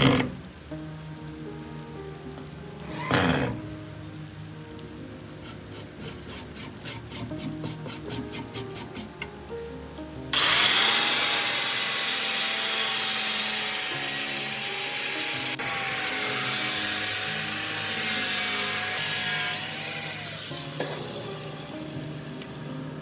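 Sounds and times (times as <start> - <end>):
power tool grinding: 0.0 - 0.5, 2.8 - 3.9, 5.4 - 9.3, 10.3 - 23.0.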